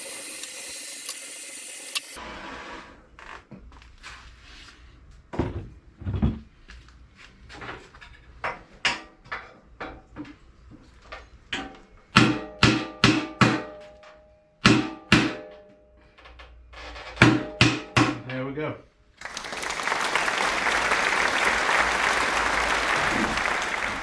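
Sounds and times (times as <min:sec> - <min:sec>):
hammer striking metal: 0:11.6 - 0:15.7, 0:17.2 - 0:18.3.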